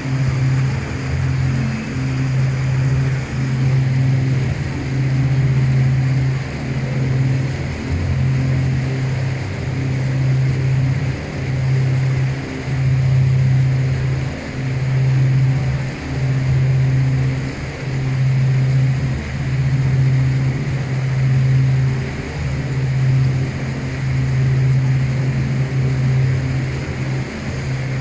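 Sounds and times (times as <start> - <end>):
water rushing alongside: 0.0 - 6.4
boat engine drone: 0.0 - 28.0.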